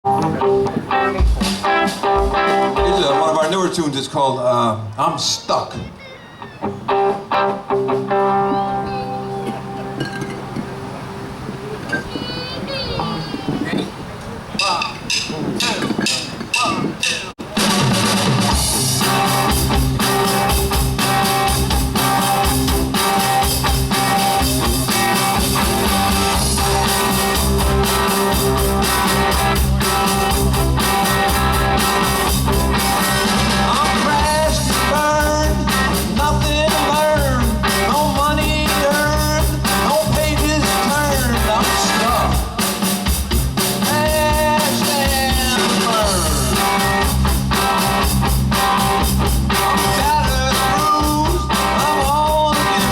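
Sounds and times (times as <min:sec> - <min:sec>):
live rock and roll band: 0:00.1 - 0:14.0, 0:14.6 - 0:52.9
lead vocal singing: 0:33.4 - 0:43.0, 0:43.8 - 0:47.0, 0:49.7 - 0:52.9.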